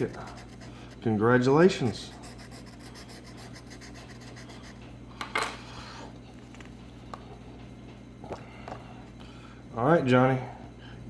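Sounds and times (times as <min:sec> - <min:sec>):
lottery ticket being scratched: 0:00.0 - 0:01.1, 0:01.9 - 0:04.8
steady low hum: 0:00.0 - 0:11.0.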